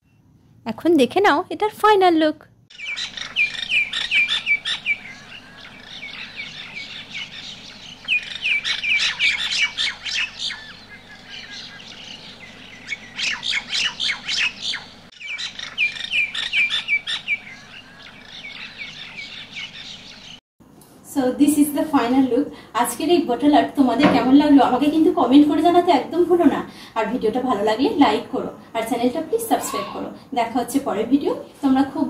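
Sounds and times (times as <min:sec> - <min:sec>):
birds chirping and squawking: 0:02.7 - 0:20.4, 0:29.4 - 0:30.2.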